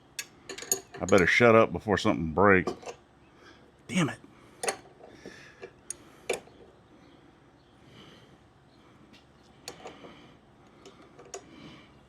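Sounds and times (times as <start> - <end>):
clicks and taps of metal tools: 0.2 - 1.3.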